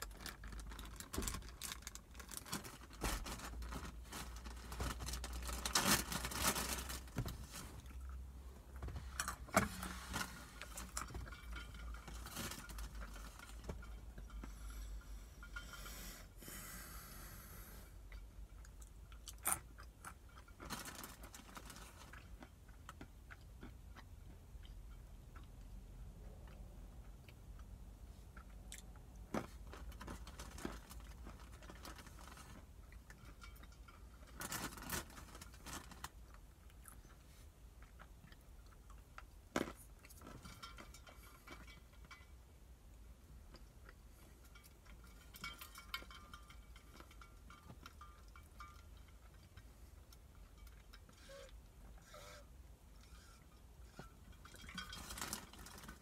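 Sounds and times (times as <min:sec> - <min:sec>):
faint low hum: 0:00.0 - 0:56.0
chewing and crunching almonds: 0:18.1 - 0:56.0.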